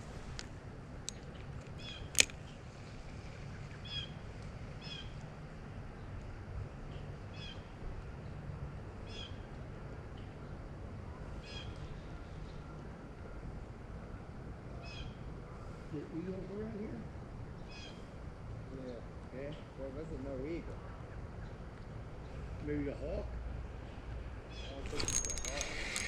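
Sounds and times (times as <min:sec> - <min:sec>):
sharp click: 0:02.1 - 0:02.4.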